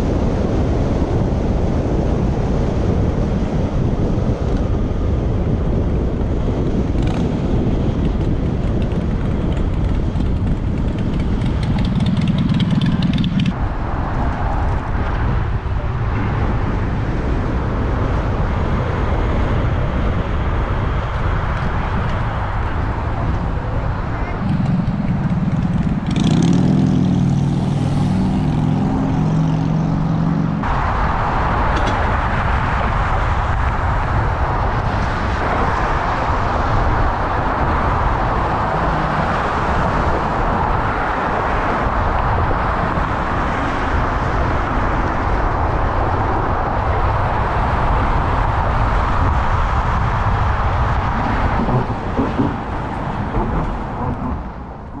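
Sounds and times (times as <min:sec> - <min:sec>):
wind and road noise on microphone: 0:00.0 - 0:55.0
motor vehicle engine running: 0:03.8 - 0:30.8, 0:44.2 - 0:55.0.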